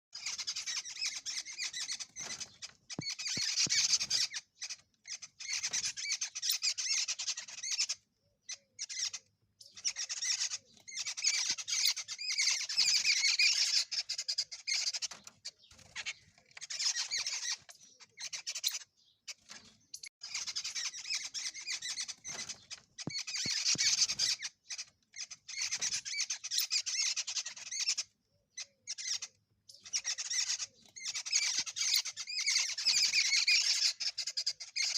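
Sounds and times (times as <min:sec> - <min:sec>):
bird chattering: 0:00.2 - 0:34.9.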